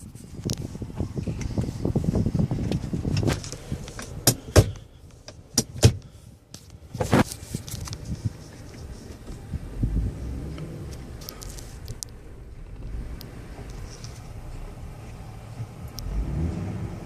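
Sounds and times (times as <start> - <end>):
low vehicle rumble: 0.0 - 17.0
sharp clicks and clunks: 2.6 - 9.4.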